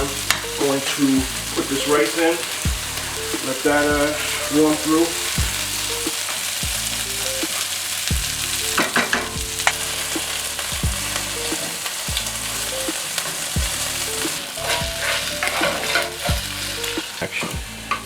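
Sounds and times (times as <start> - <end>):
background music with kick drum: 0.0 - 18.0
rice sizzling in a wok: 0.0 - 18.0
spatula scraping and clattering: 14.2 - 18.0.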